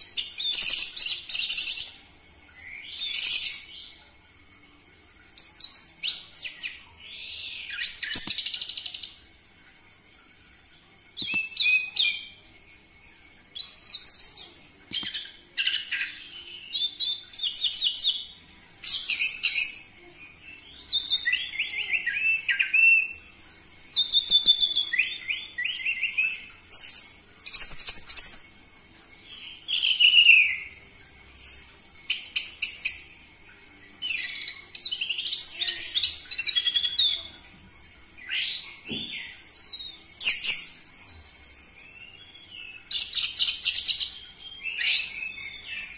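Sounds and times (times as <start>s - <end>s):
thrush singing whistled trills: 38.2s - 45.9s.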